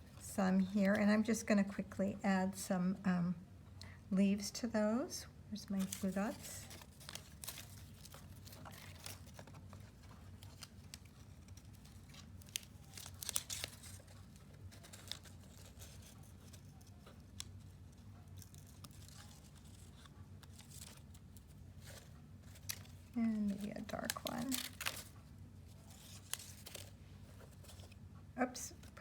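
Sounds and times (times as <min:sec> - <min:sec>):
low steady hum: 0:00.0 - 0:29.0
paper rustling and crinkling: 0:05.6 - 0:28.0.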